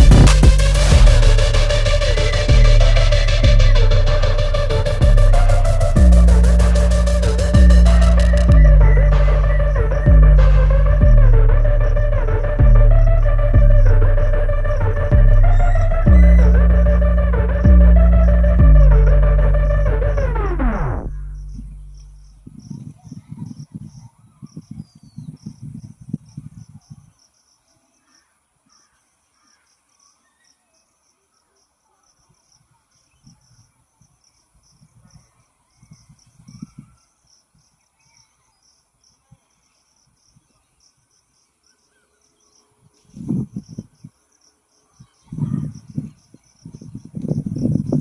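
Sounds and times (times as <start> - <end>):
low rumbling buffets: 0.0 - 22.6
insects chirping: 20.6 - 48.0
faint bird calls: 21.4 - 44.2, 44.8 - 48.0.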